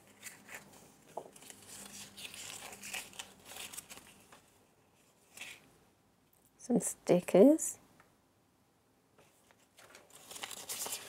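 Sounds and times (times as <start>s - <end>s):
wrapped packets crinkling: 1.3s - 4.4s, 9.8s - 11.0s.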